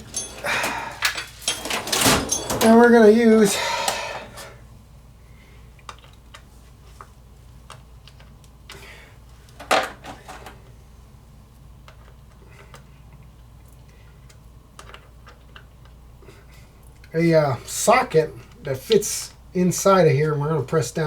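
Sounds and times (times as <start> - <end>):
small metal tools clinking: 0.0 - 3.0
metal parts clattering: 0.0 - 3.2, 9.6 - 10.6.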